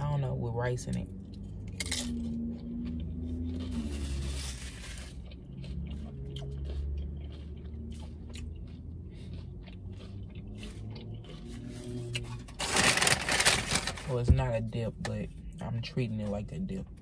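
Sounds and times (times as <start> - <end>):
person chewing food: 1.1 - 13.6.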